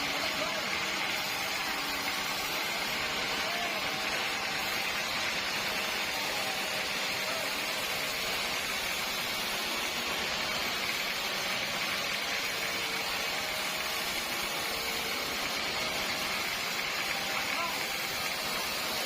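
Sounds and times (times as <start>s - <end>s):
machine hiss: 0.0s - 19.0s.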